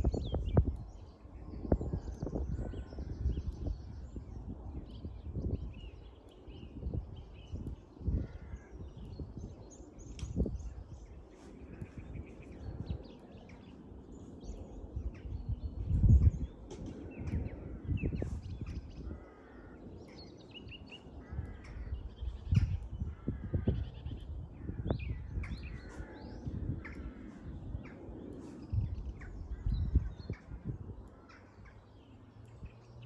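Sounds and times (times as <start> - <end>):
birds chirping: 0.0 - 33.0
wind gusting on microphone: 0.0 - 33.0
harsh caw-like calls: 8.0 - 8.8, 19.0 - 20.2, 21.0 - 22.4, 23.0 - 24.9.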